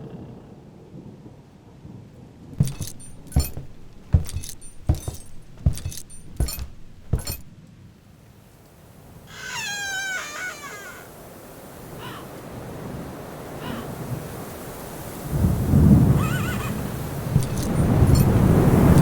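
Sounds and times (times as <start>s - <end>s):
boot footsteps: 2.6s - 7.5s, 17.4s - 19.0s
spurs jingling: 2.6s - 7.5s, 17.3s - 19.0s
warbling high cry: 9.3s - 11.2s.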